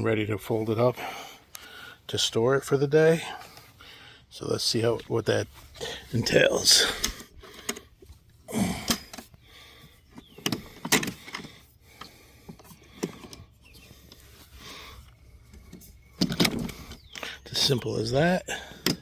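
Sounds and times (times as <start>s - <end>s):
mower handle clicks and clunks: 6.8s - 7.9s, 8.8s - 9.3s, 10.1s - 13.5s, 15.4s - 17.2s, 18.6s - 19.0s.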